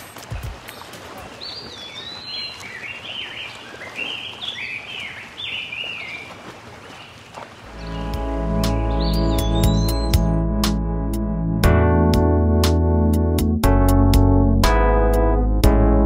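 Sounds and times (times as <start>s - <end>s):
outdoor background noise: 0.0s - 8.8s
songbird chirping: 0.0s - 10.8s.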